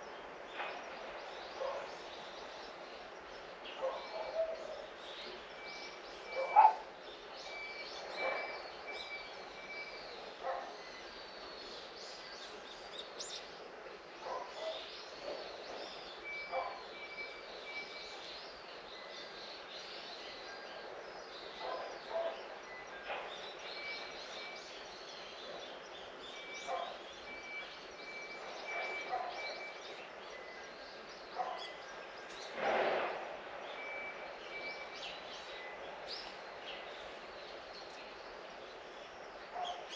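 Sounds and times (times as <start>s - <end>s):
birds chirping and calling: 37.8s - 39.9s.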